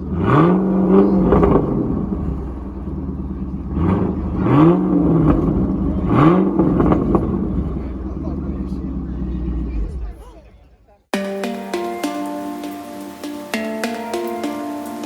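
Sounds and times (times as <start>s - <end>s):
sports car engine revving: 0.0s - 10.2s.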